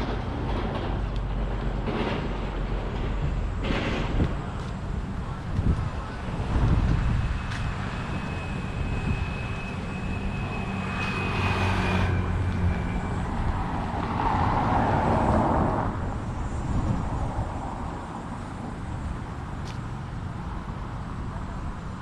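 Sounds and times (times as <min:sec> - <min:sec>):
motor vehicles passing: 0:00.0 - 0:22.0
thin high whine: 0:07.1 - 0:14.7.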